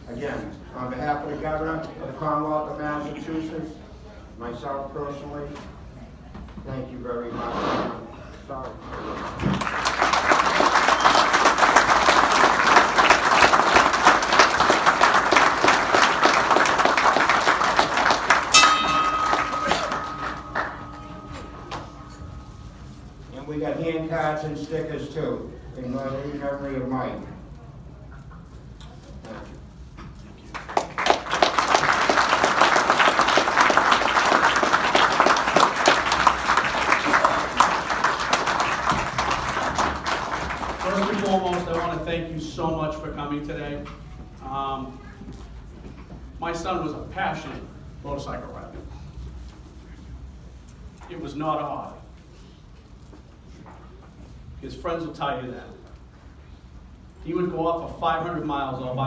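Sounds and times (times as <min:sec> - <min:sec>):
audience applauding: 0:09.1 - 0:21.8, 0:30.5 - 0:42.0
steady high tone: 0:18.4 - 0:23.2.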